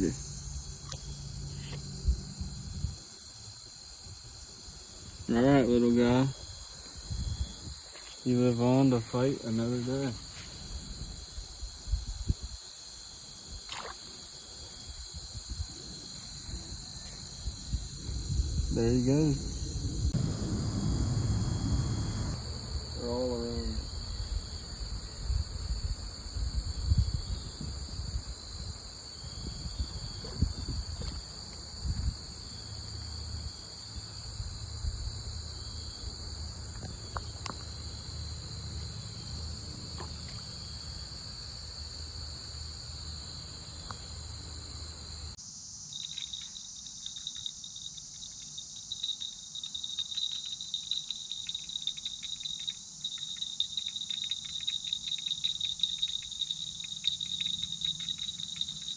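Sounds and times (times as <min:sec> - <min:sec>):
fast-pulsing insect trill: 0:00.0 - 0:58.9
insects trilling: 0:00.0 - 0:58.9
low rumble: 0:17.9 - 0:23.0.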